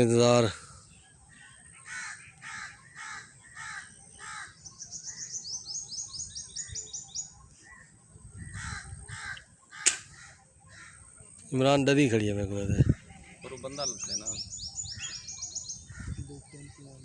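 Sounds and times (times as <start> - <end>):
birds calling harshly: 0.0 - 17.0
bird trilling: 1.8 - 11.1.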